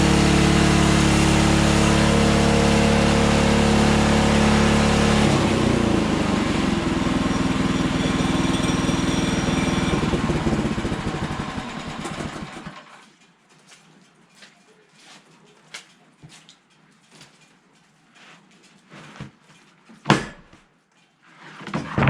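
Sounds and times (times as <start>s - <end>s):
sawmill engine chugging: 0.0s - 13.0s.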